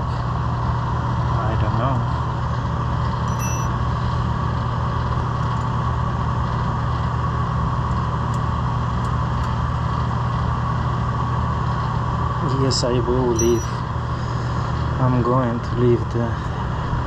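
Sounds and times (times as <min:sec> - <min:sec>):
compressor hum: 0:00.0 - 0:17.0
condenser fan whirring: 0:00.0 - 0:17.0.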